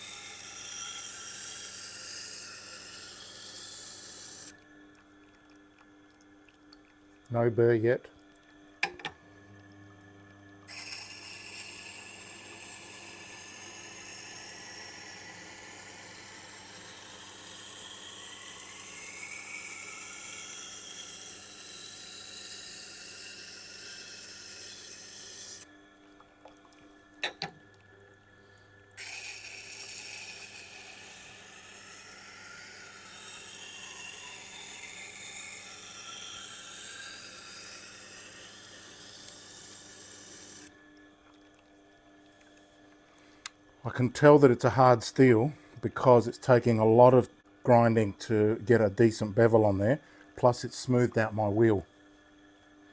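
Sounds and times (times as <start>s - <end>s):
steel grinding on wet stone: 0.0s - 4.6s, 10.7s - 25.6s, 29.0s - 40.7s.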